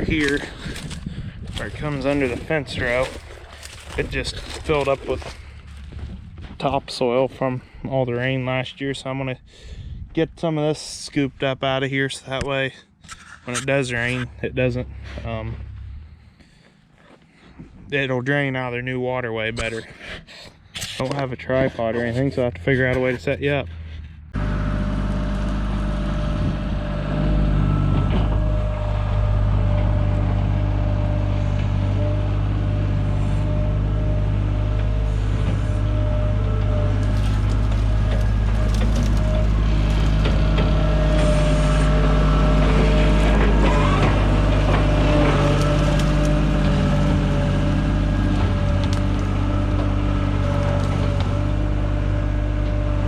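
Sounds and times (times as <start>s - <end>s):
bucket scraping into soil: 0.0s - 6.0s, 35.1s - 51.5s
loader diesel engine running: 0.0s - 8.7s, 12.5s - 17.3s, 21.1s - 53.0s.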